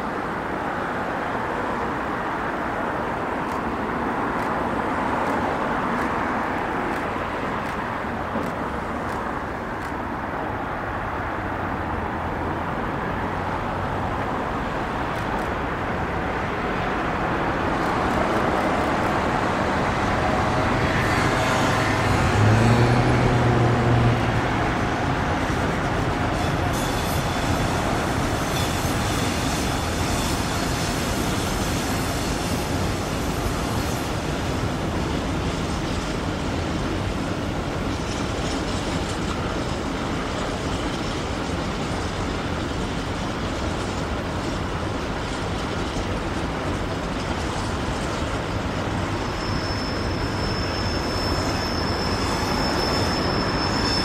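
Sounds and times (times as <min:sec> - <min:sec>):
train wheels rumbling on rail: 0:00.0 - 0:54.0
high-pitched wheel squeal: 0:25.5 - 0:32.9, 0:49.1 - 0:54.0.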